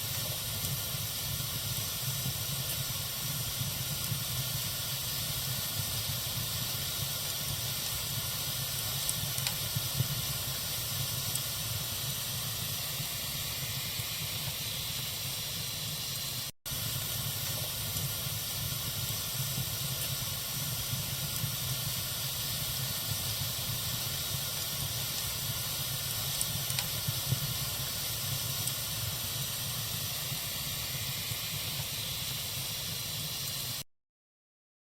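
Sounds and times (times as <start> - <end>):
faint fire pops: 0.0 - 13.1, 16.7 - 32.9
campfire burning with hiss: 0.0 - 33.8.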